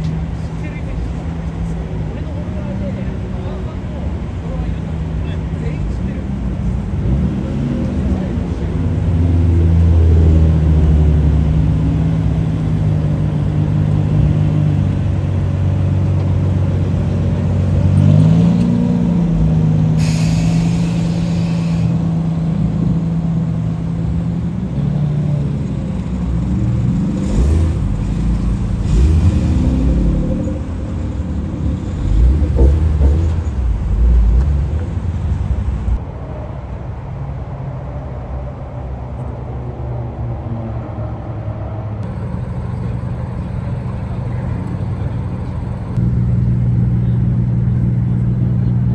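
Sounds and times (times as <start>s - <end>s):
car engine idling and revving: 0.0s - 39.5s, 41.8s - 48.9s
short hiss: 20.0s - 22.0s.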